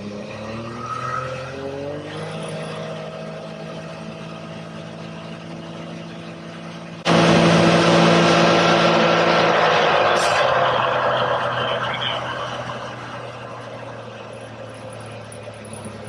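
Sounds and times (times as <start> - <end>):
engine accelerating: 0.0 - 16.0
sudden rushing noise: 7.1 - 14.7.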